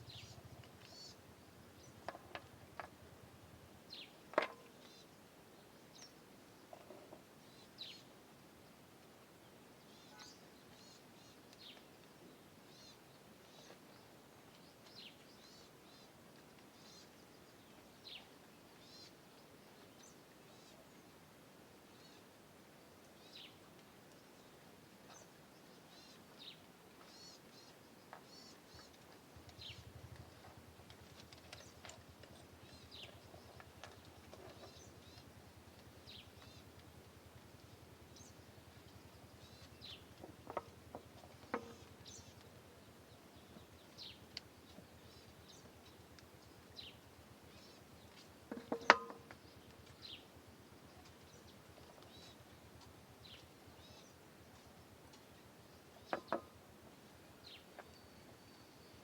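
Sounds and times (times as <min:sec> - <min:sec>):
birds chirping: 0:25.9 - 0:54.2.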